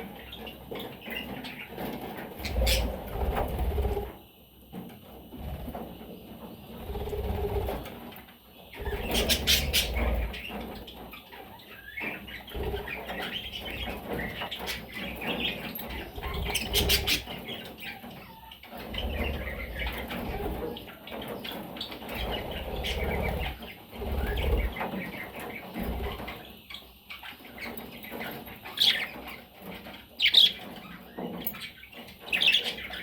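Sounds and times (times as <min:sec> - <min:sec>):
wing flapping: 0:02.3 - 0:04.2, 0:06.7 - 0:08.0, 0:18.8 - 0:26.5
budgerigars chirping: 0:02.4 - 0:03.1, 0:08.7 - 0:29.4, 0:30.1 - 0:31.0, 0:31.6 - 0:33.0.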